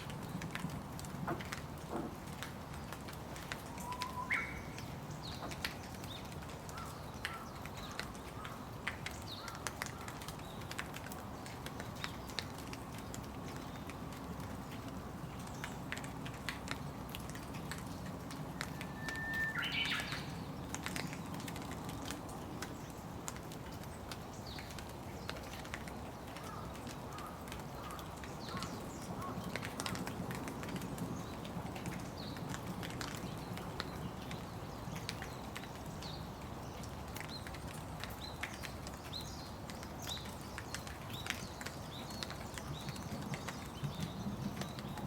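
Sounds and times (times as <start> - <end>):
raindrops ticking: 0.0 - 45.0
steady rain: 0.0 - 45.0
bird call: 3.8 - 4.7, 18.7 - 20.3.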